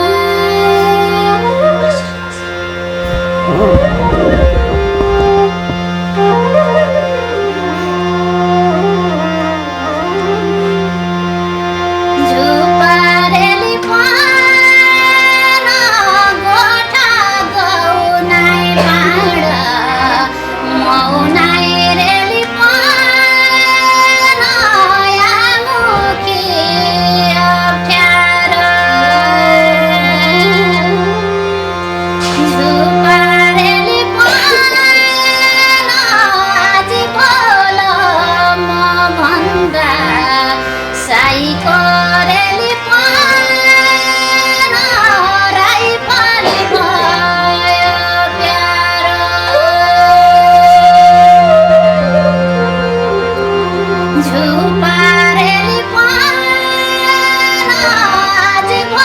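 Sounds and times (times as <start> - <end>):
ornamented folk melody: 0.0 - 59.0
low drone: 2.2 - 7.8.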